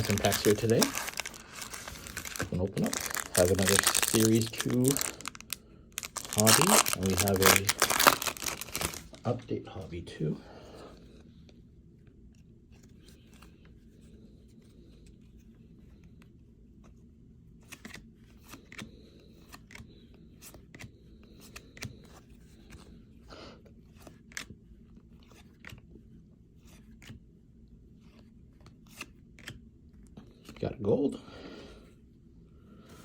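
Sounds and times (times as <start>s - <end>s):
cards being shuffled: 0.0s - 9.2s, 17.6s - 23.0s, 23.9s - 25.9s, 26.6s - 27.2s, 28.0s - 29.6s
card wrappers crinkling: 0.0s - 9.4s.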